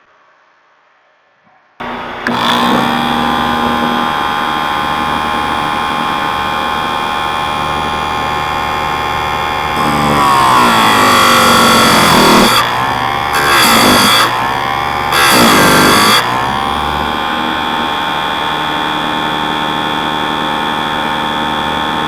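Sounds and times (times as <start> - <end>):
grinding wheel grinding chain tooth: 1.8 - 22.0
grinding wheel motor whine: 1.8 - 22.0.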